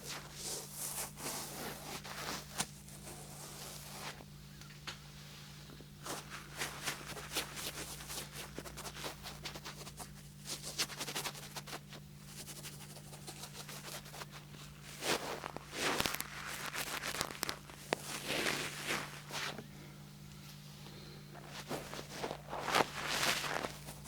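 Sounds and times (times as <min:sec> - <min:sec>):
rubbing and scratching: 0:00.0 - 0:04.2, 0:06.0 - 0:19.6, 0:21.4 - 0:24.0
faint low hum: 0:00.0 - 0:24.0
light tapping and scratching: 0:06.1 - 0:19.6.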